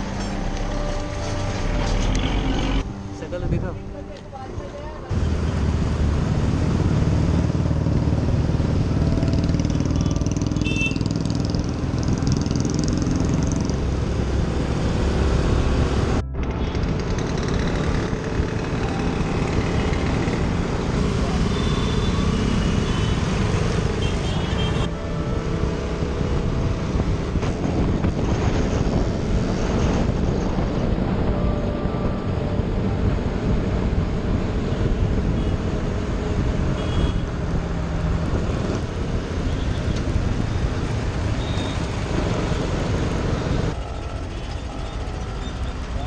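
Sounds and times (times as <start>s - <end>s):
motorcycle engine running: 5.1s - 29.5s, 36.8s - 46.0s
wind rumble on microphone: 24.9s - 44.4s.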